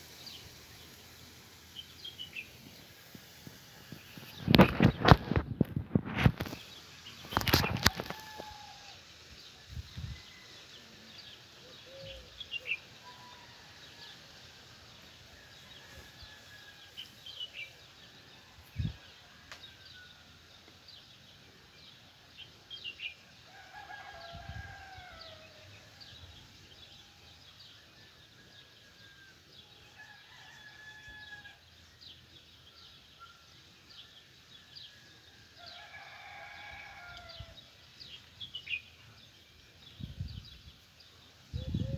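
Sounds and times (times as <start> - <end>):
distant rooster crowing: 7.3 - 9.1, 23.5 - 26.1, 28.1 - 31.7, 34.8 - 37.7.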